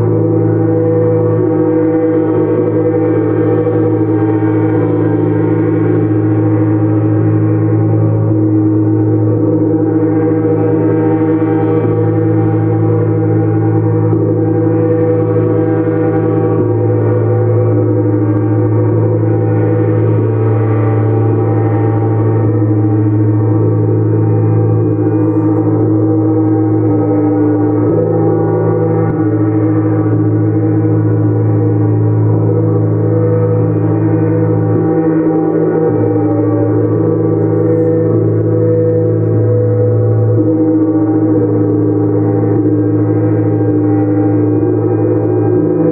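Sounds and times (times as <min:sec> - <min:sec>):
gong ringing: 0:00.0 - 0:45.9.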